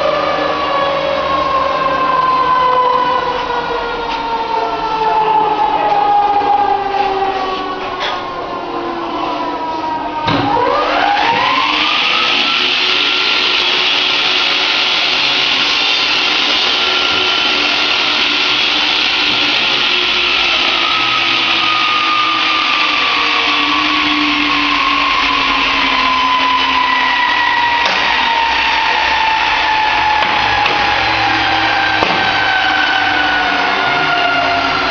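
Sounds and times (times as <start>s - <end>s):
electric power tool motor whine: 10.4s - 34.9s.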